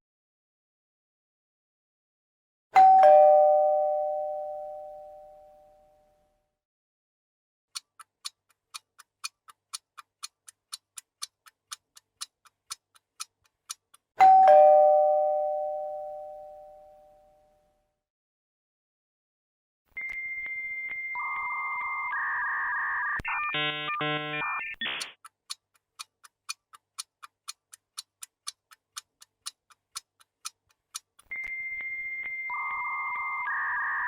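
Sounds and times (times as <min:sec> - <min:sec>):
two-note doorbell chime: 0:02.8 - 0:06.4, 0:14.2 - 0:17.9
clock-like ticking: 0:07.7 - 0:14.5, 0:24.8 - 0:33.0.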